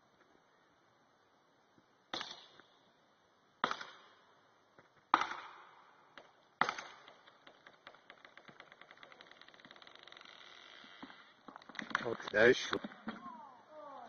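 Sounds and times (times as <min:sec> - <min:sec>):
axe chopping tree trunk: 0:03.6 - 0:04.0, 0:05.1 - 0:05.6, 0:06.6 - 0:08.0.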